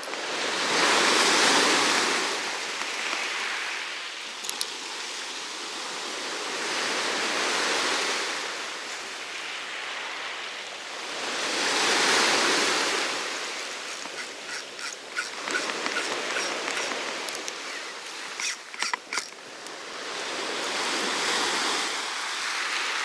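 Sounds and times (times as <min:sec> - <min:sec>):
waves breaking on beach: 0:00.0 - 0:23.0
small clicks: 0:04.4 - 0:04.7.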